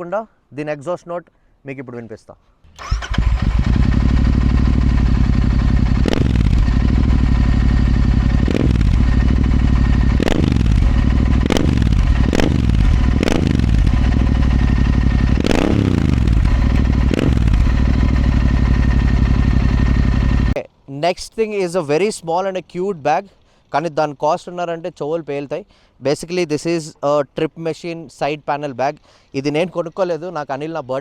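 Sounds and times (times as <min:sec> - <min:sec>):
motorcycle revving: 0:02.8 - 0:20.6.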